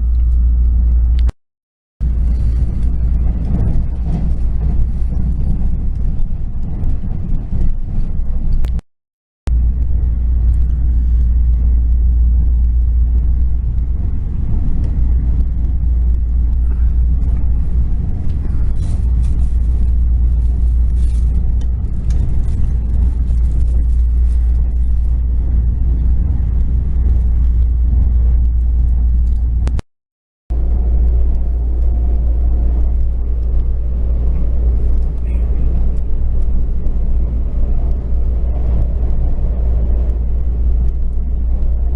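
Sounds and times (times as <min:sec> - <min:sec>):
train carriage rumble: 0:02.0 - 0:08.8, 0:09.5 - 0:29.8, 0:30.5 - 0:41.9.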